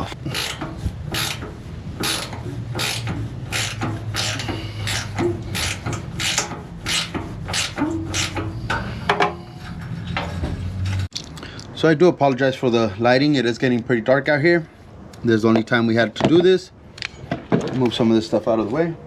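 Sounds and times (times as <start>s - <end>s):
hand ratchet clicking: 0.2s - 8.9s.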